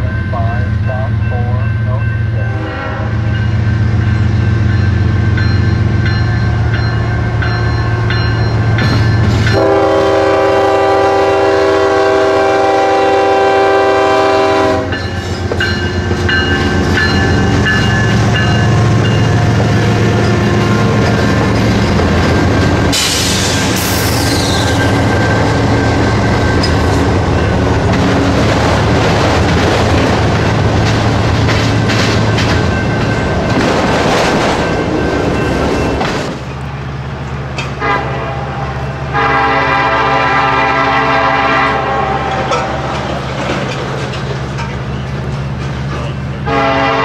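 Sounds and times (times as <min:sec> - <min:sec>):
diesel locomotive engine drone: 0:00.0 - 0:47.0
distant train low drone: 0:00.0 - 0:47.0
train horn blast: 0:02.4 - 0:03.4, 0:09.5 - 0:15.1, 0:37.8 - 0:43.0, 0:46.4 - 0:47.0
wheels clattering on rails: 0:14.9 - 0:36.6, 0:42.3 - 0:46.2
high falling squeal: 0:22.9 - 0:25.7.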